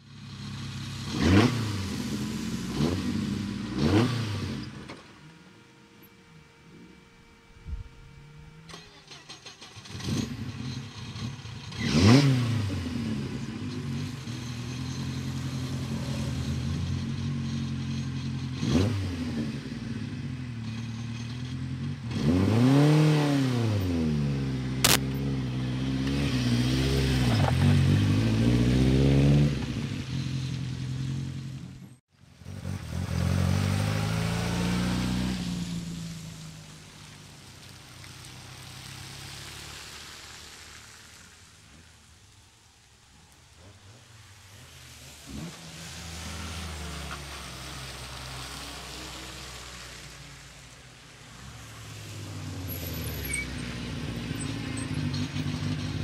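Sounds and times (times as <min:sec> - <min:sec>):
car accelerating on wet road: 0:00.0 - 0:07.1, 0:08.6 - 0:56.0
rally car engine revving: 0:00.0 - 0:31.6, 0:32.4 - 0:36.3.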